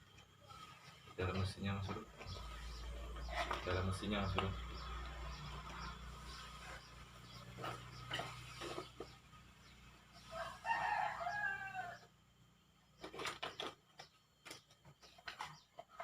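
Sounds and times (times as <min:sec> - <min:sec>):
rooster crowing: 0:10.2 - 0:12.1
clicks and rustles of handling: 0:13.0 - 0:16.0.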